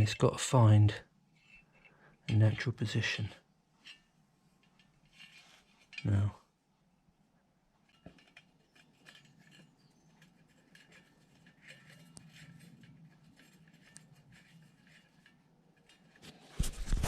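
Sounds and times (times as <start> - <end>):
metal spokes clicking against hub: 7.8 - 16.2.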